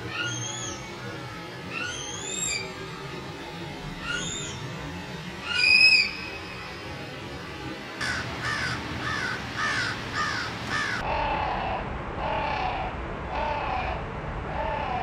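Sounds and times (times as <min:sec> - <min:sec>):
bird harsh calls: 0:01.7 - 0:02.7, 0:04.0 - 0:04.6, 0:05.4 - 0:06.2, 0:08.0 - 0:14.0
lower-pitched bird calls: 0:01.7 - 0:02.7, 0:04.0 - 0:04.6, 0:05.4 - 0:06.3.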